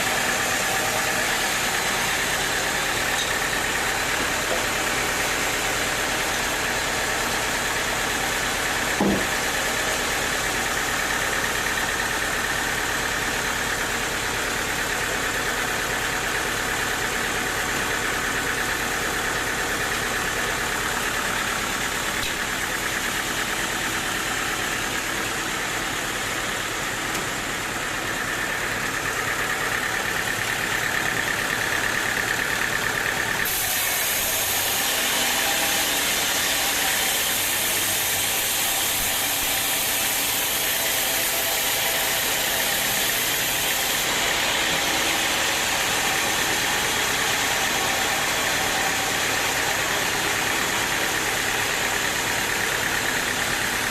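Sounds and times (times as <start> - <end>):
sawmill machinery droning: 0.0 - 53.9
short knock: 9.0 - 9.4.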